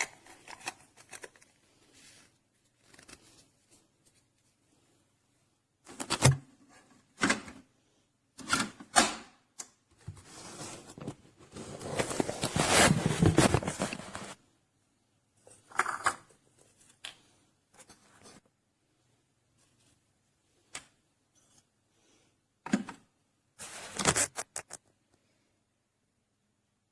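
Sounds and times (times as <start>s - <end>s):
rustling and scraping: 10.0s - 14.4s.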